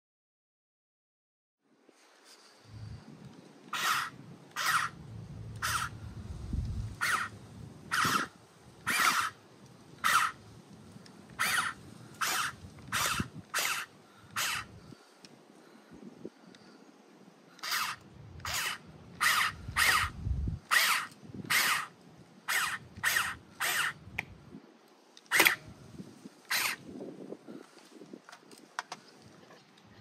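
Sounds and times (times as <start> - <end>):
bird cawing: 3.7 - 5.0, 5.6 - 6.1, 7.0 - 8.3, 8.9 - 9.4, 11.4 - 14.7
low rumble: 4.9 - 7.9.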